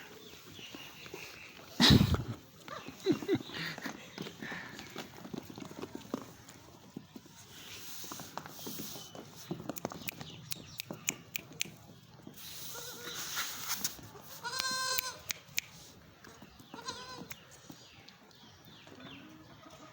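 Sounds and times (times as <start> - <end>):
rustling: 12.4 - 14.5
goat kid bleating: 12.7 - 13.3, 14.2 - 15.4, 16.8 - 17.4.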